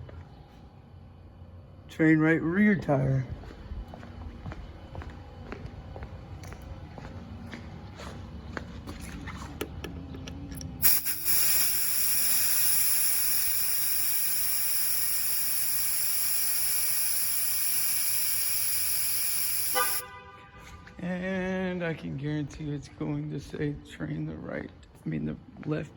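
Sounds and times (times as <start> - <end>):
air hissing from tire valve: 10.8 - 20.1.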